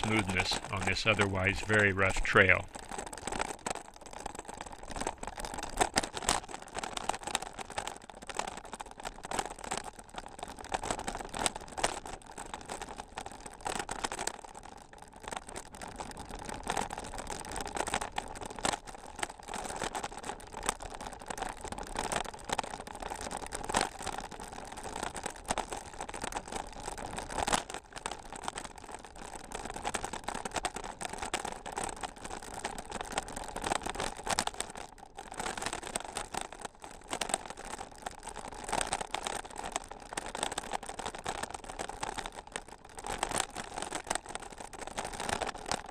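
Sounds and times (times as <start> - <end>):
tyres crunching on trail: 0.0 - 2.8
bike rattling and clicking: 2.6 - 45.9.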